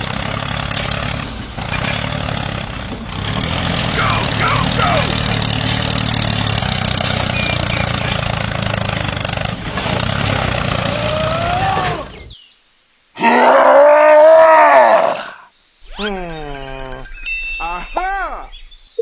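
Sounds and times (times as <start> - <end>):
loud pitched groan: 9.3 - 12.3, 13.2 - 18.5.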